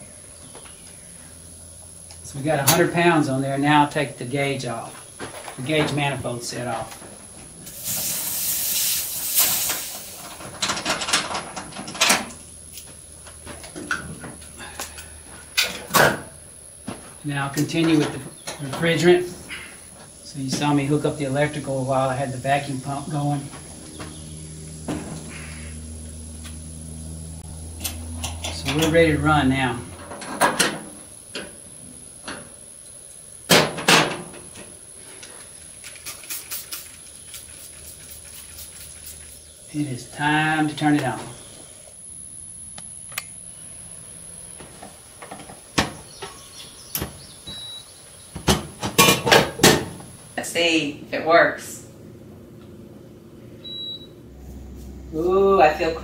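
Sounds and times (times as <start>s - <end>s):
refrigerant hissing out: 7.5s - 11.6s, 19.0s - 28.1s, 30.8s - 42.0s
spray bottle trigger pumps: 35.8s - 39.4s.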